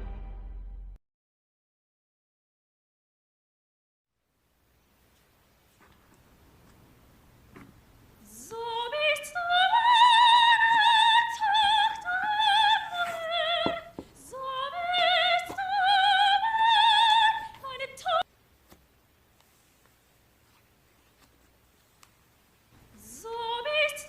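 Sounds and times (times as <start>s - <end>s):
soprano singing operatic melody: 8.2s - 18.3s, 22.9s - 24.0s.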